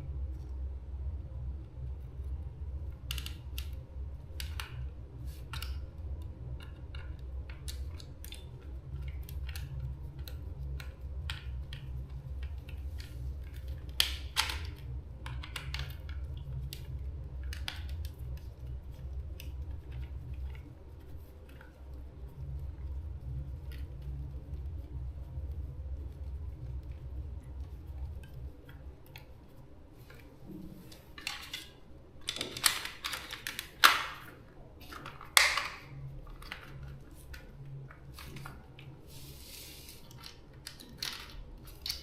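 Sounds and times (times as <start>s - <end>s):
steady low hum: 0.0s - 42.0s
small clicks and taps of parts: 3.0s - 20.7s, 40.0s - 42.0s.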